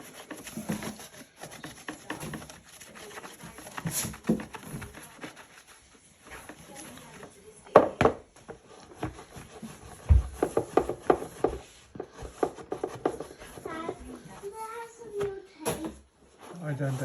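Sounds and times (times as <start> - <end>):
hard objects knocking: 7.6 - 14.4.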